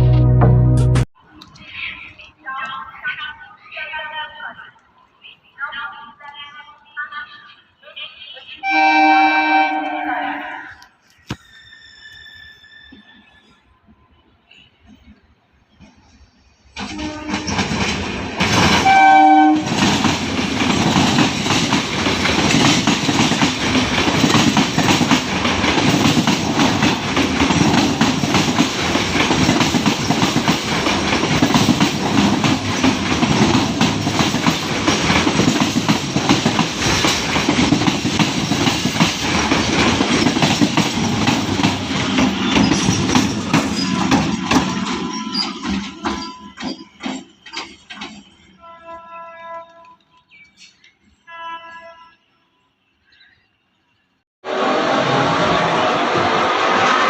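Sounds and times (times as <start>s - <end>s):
train horn blast: 8.6s - 10.9s, 16.8s - 17.7s, 18.8s - 19.7s, 48.6s - 50.1s, 51.3s - 52.8s, 54.4s - 57.0s
train wheels clattering on rail: 16.8s - 48.6s.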